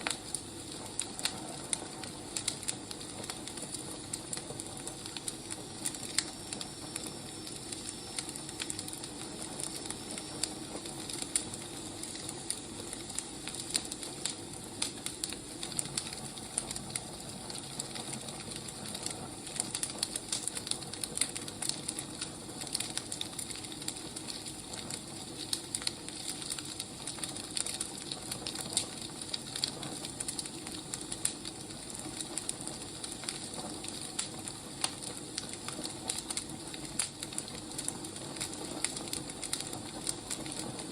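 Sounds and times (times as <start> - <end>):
soft hiss of burning logs: 0.0 - 40.9
wood fire crackling: 0.0 - 40.9.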